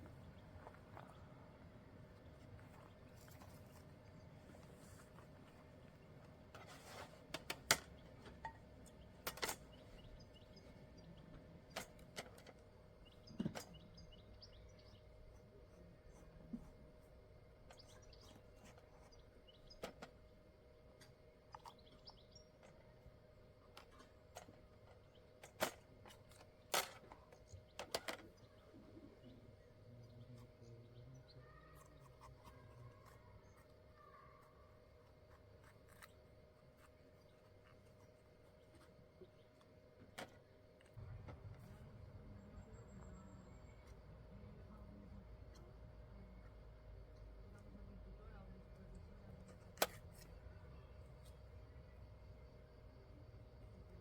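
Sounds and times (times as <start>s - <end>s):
faint bird chirps: 13.0s - 20.5s, 27.1s - 39.6s, 40.4s - 49.6s.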